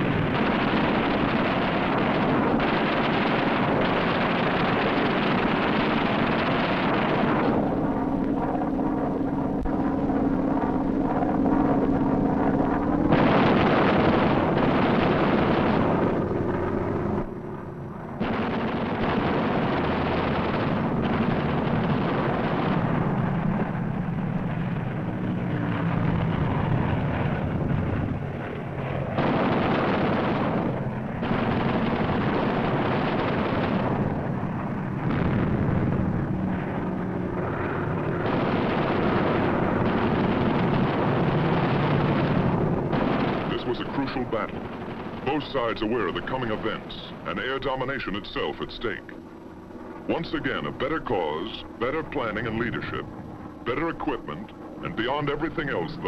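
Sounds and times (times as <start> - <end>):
aircraft engines roaring: 0.0 - 56.0
gunfire: 13.1 - 16.4, 18.2 - 23.7, 29.1 - 34.4, 38.0 - 48.2.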